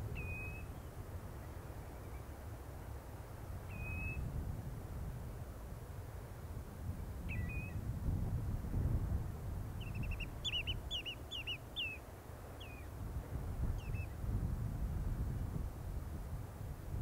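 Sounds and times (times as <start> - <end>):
small bird calling: 0.1 - 0.9, 3.7 - 4.2, 9.8 - 12.0, 12.6 - 12.9.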